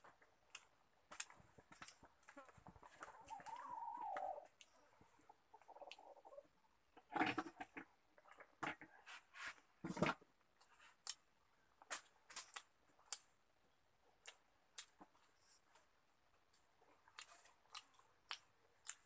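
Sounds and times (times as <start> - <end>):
person chewing with wet smacks: 10.6 - 11.3, 14.2 - 15.8, 16.4 - 19.0.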